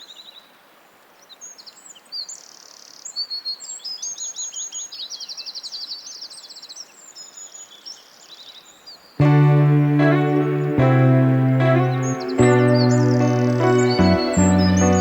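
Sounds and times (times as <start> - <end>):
songbirds singing and chirping: 1.2 - 9.2
bird trill: 10.4 - 15.0.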